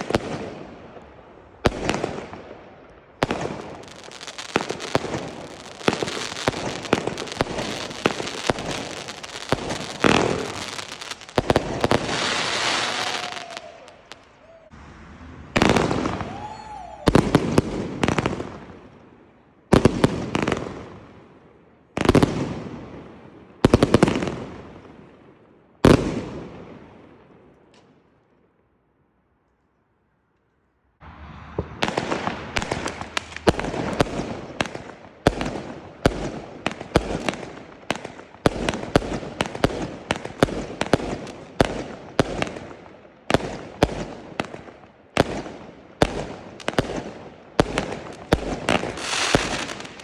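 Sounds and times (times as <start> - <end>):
loud firework bursts echoing: 0.0 - 27.4, 31.0 - 50.0
fireworks bangs and crackles: 0.0 - 28.2, 31.0 - 50.0
fireworks hiss: 4.0 - 16.5, 48.7 - 50.0.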